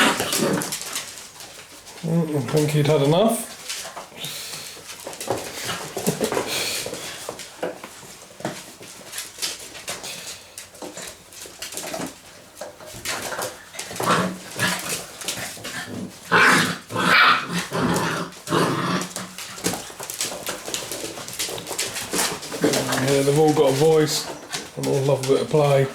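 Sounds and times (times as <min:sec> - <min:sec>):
puppies growling and yapping: 0:00.0 - 0:01.8, 0:11.0 - 0:24.8.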